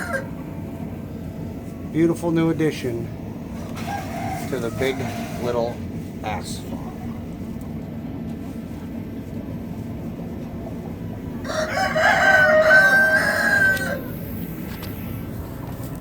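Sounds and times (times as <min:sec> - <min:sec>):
rooster crowing: 0:00.0 - 0:00.4, 0:03.6 - 0:05.4, 0:11.4 - 0:14.3
low background rumble: 0:00.0 - 0:16.0.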